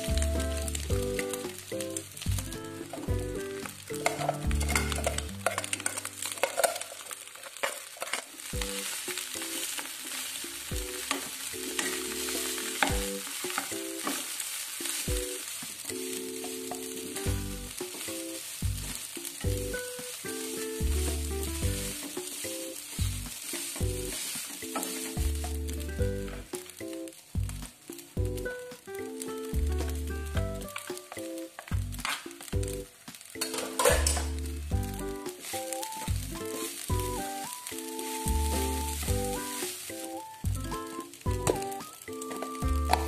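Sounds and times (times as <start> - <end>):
rice sizzling in a wok: 0.0 - 43.0
spatula scraping a pan: 2.7 - 26.5.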